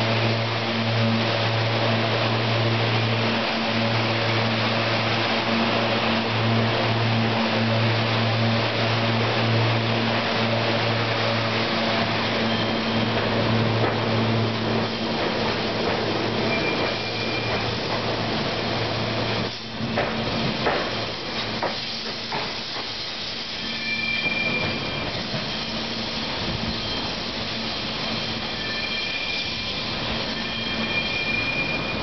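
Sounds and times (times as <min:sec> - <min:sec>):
departing train rumble: 0:00.0 - 0:32.0
electric train hum: 0:00.0 - 0:32.0
faint high-pitched squeals: 0:16.3 - 0:17.7, 0:23.5 - 0:32.0.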